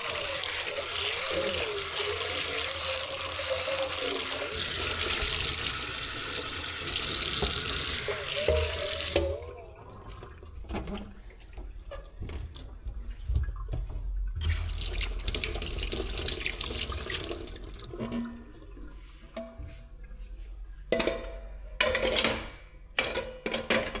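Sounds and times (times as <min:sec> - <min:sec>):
tap water running into sink: 0:00.0 - 0:21.1
dishes clinking: 0:08.1 - 0:09.4, 0:20.9 - 0:24.0.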